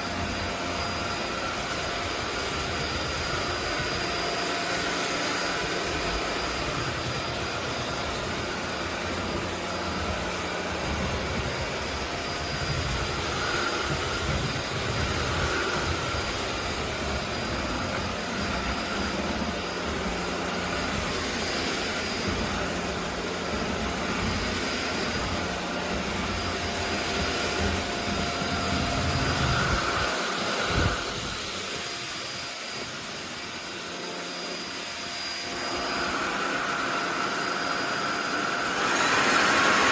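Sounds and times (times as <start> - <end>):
stick vacuum running: 0.0 - 39.9.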